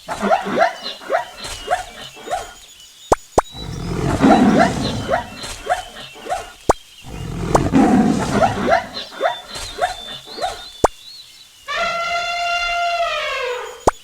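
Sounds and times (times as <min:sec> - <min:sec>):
lion grunting: 0:00.0 - 0:02.6, 0:03.5 - 0:10.7
lion roaring: 0:03.6 - 0:10.6.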